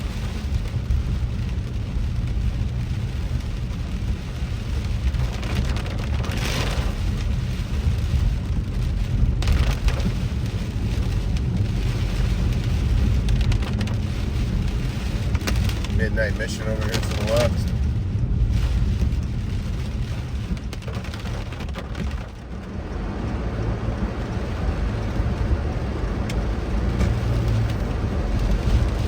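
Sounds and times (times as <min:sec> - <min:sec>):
rain pattering on car: 0:00.0 - 0:29.0
road rumble: 0:00.0 - 0:29.0.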